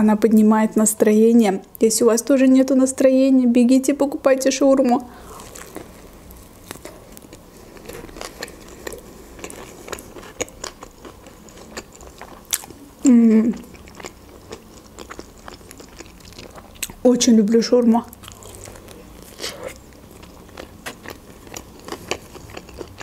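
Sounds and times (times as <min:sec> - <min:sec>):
person chewing with wet mouth clicks: 0:06.6 - 0:12.8, 0:13.5 - 0:17.0, 0:18.2 - 0:23.0.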